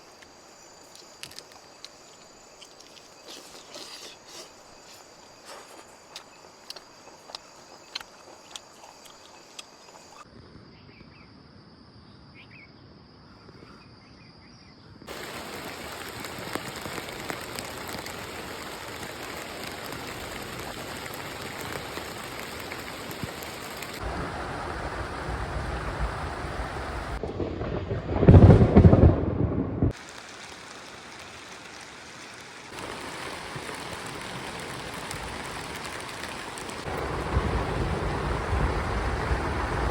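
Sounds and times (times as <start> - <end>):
crickets chirring: 0.0 - 29.2, 29.8 - 39.9
heavy rain: 15.1 - 39.9
low rumble of thunder: 24.0 - 30.0, 32.8 - 39.9.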